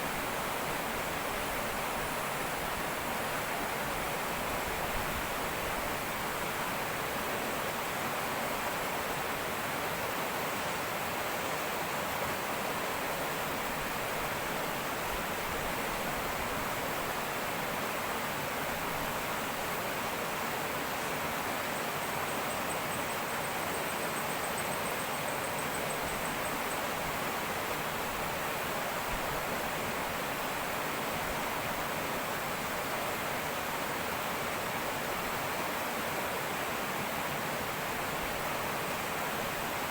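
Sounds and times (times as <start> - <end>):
faint insect trill: 20.9 - 28.4
river water rushing over rocks: 25.9 - 39.9.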